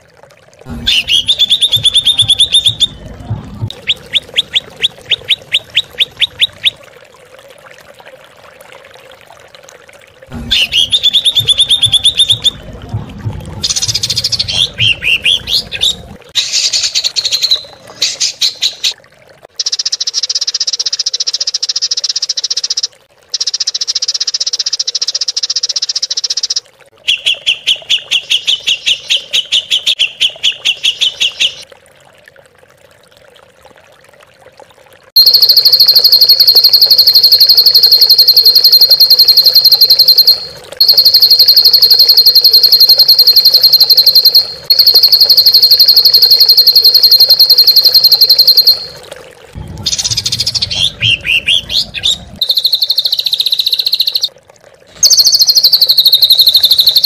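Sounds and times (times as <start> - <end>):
faint trickling water: 0.0 - 57.0
bird song: 0.9 - 3.1, 49.9 - 54.3.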